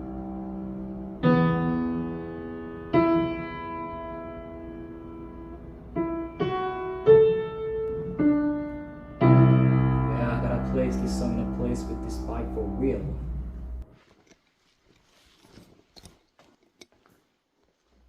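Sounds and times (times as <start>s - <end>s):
piano chords and notes: 0.0s - 13.9s.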